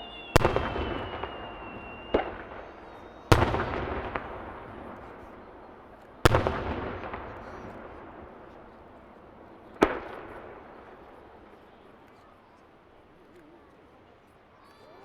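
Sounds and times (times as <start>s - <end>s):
firework shells booming: 0.0s - 11.6s.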